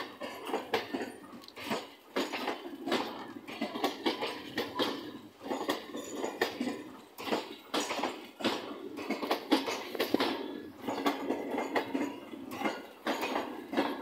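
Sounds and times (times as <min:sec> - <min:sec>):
train wheels clacking over rail joints: 0:00.0 - 0:14.0.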